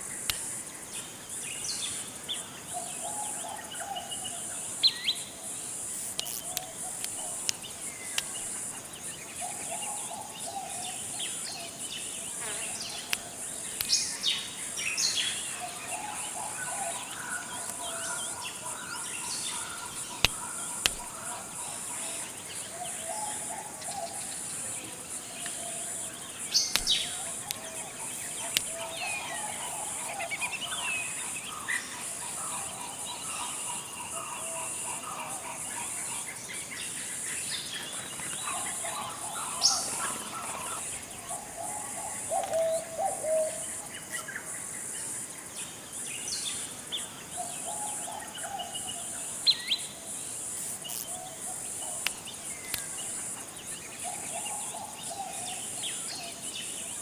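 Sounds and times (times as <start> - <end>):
birds calling: 2.8 - 35.6, 37.8 - 44.5
high-pitched insect buzz: 4.8 - 9.1, 11.3 - 14.4, 25.8 - 31.2, 49.5 - 53.5.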